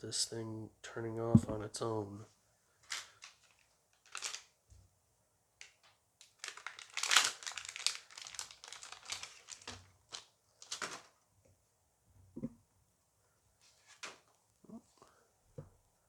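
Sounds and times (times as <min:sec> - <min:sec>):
wrapper crinkling: 0:02.9 - 0:04.5, 0:06.2 - 0:11.1.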